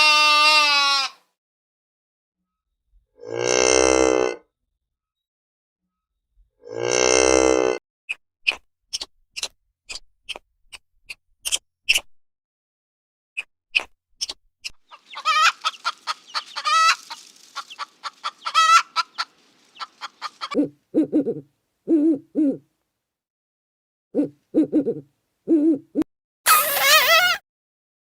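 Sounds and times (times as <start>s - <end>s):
chicken clucking and cackling: 14.9s - 21.4s
low hoots: 20.5s - 22.7s, 24.2s - 26.0s.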